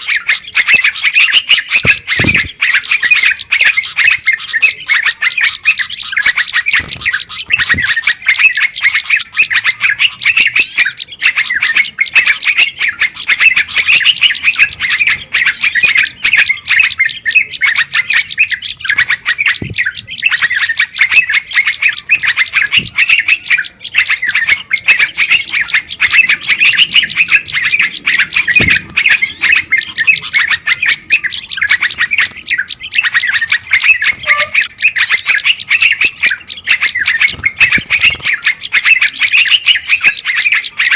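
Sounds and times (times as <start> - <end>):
flock of songbirds chattering: 0.0 - 40.9.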